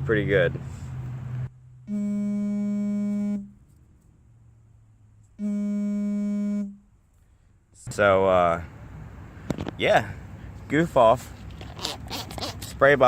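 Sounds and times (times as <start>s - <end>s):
buzzer tone: 1.9s - 3.5s, 5.4s - 6.8s.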